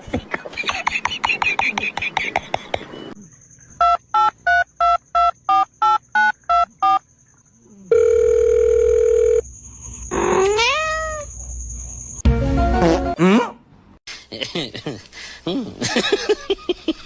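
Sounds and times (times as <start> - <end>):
steady telephone tone: 7.9 - 9.4
cat meowing: 10.4 - 11.3.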